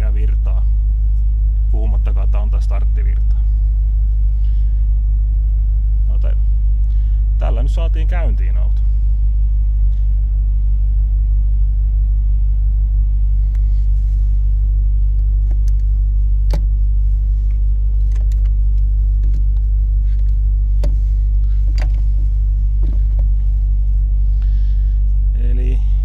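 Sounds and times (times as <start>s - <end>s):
car engine idling: 0.0s - 26.0s
sharp clicks of cable handling: 18.0s - 21.0s, 21.6s - 22.1s.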